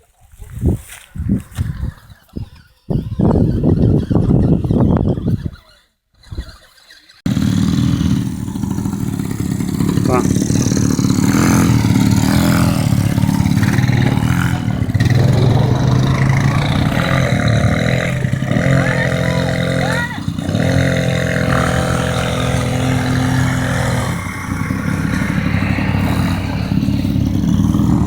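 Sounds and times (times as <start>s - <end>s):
quad bike engines revving: 1.2s - 28.0s
higher engine tone: 7.3s - 28.0s.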